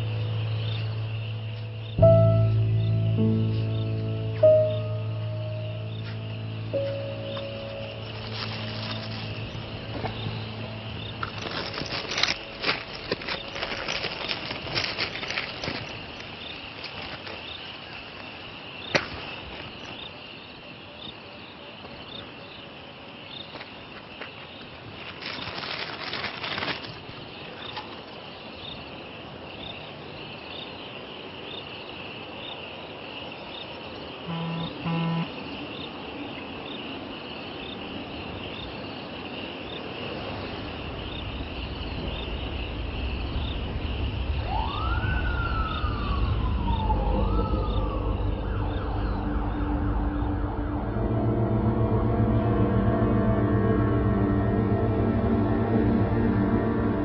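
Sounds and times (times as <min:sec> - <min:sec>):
crickets chirping: 0:00.0 - 0:57.0
short low tones: 0:34.3 - 0:35.3
low rumble: 0:41.6 - 0:57.0
ominous drone: 0:42.0 - 0:57.0.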